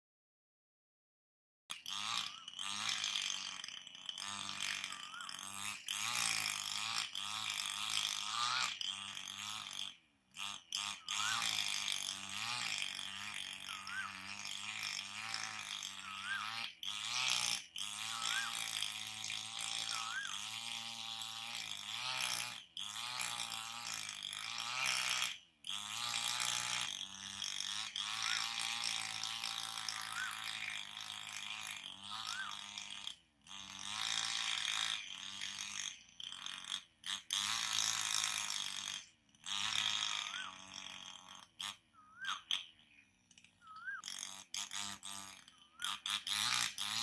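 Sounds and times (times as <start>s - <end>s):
songbird harsh rasping chatter: 1.9s - 6.0s, 10.4s - 18.8s, 19.6s - 20.8s, 27.2s - 32.9s, 40.0s - 47.0s
songbird whistled notes: 41.9s - 42.4s, 43.6s - 44.0s.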